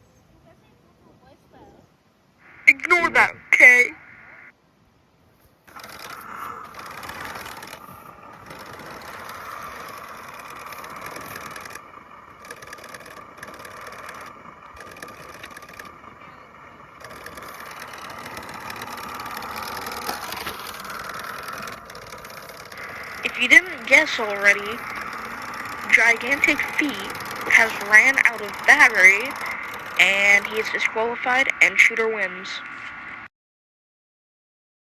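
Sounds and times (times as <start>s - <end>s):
toy truck motor whirring: 5.7s - 31.5s.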